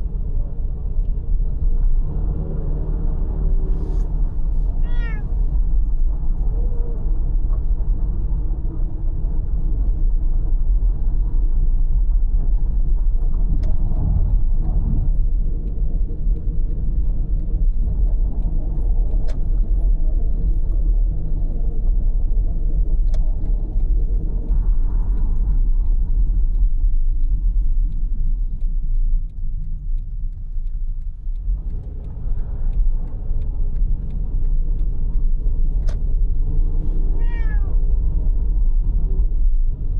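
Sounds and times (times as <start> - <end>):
car engine and tyres rumbling: 0.0 - 39.9
faint clicks and rattles: 13.0 - 36.8.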